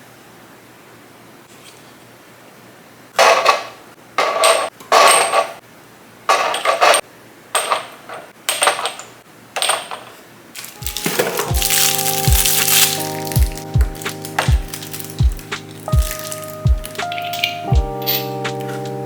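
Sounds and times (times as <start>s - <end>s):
items clattering into plastic containers: 3.2s - 5.6s, 6.3s - 18.8s
music: 10.8s - 19.0s.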